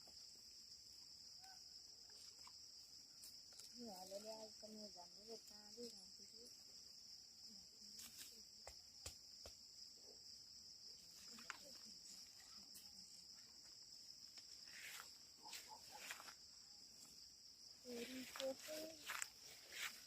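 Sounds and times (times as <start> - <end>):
insect chorus: 0.0 - 20.0.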